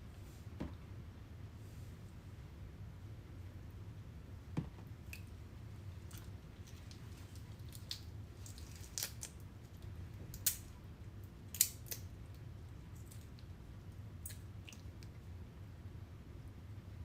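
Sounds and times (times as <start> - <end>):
steady low hum: 0.0 - 17.0
sharp clicks and snips: 11.5 - 12.1.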